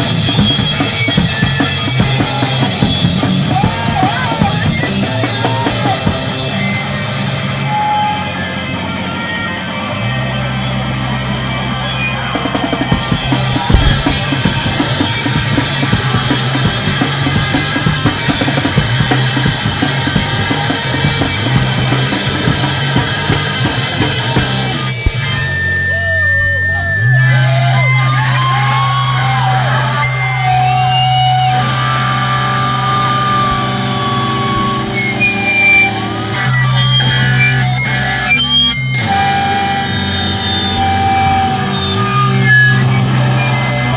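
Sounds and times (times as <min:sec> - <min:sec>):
live screamo band playing: 0:00.0 - 0:43.9
squealing guitar feedback: 0:00.0 - 0:43.9
held bass note: 0:13.1 - 0:17.8.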